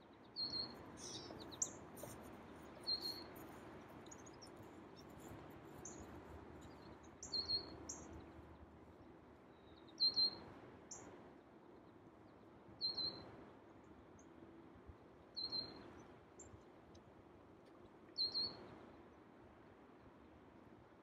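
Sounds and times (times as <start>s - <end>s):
bird chirping: 0.4s - 8.4s, 9.5s - 11.0s, 12.8s - 13.2s, 15.4s - 15.8s, 18.2s - 18.6s.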